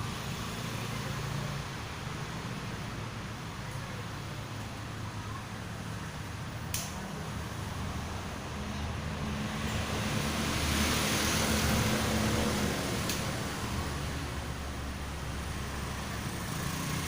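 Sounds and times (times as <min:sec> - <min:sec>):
sharp click: 0:06.7 - 0:07.0.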